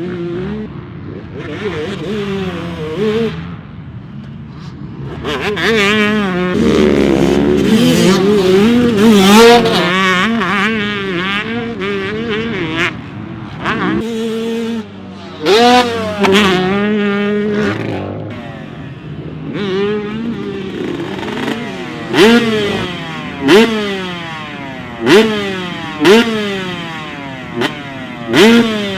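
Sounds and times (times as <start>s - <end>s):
motocross bikes revving: 0.0s - 28.9s.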